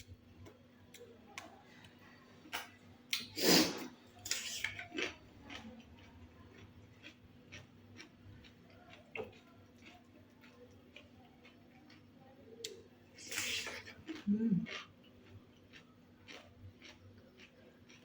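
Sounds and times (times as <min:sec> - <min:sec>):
chewing clicks: 0:04.3 - 0:12.8, 0:13.4 - 0:18.0.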